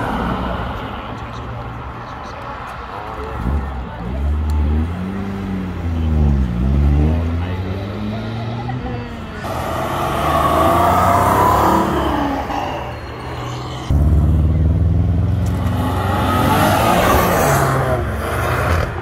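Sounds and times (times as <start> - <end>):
sports car revving: 3.4 - 19.0
turbocharged car engine revving: 4.4 - 19.0.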